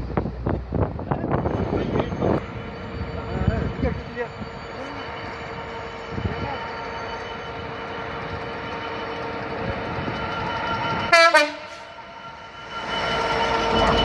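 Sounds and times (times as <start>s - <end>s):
train rumbling: 0.0s - 14.0s
train horn blasts: 11.1s - 11.9s.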